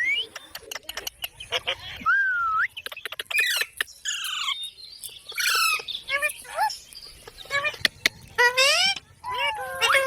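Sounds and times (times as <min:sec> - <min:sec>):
parrot chirps and clicks: 0:02.8 - 0:07.0.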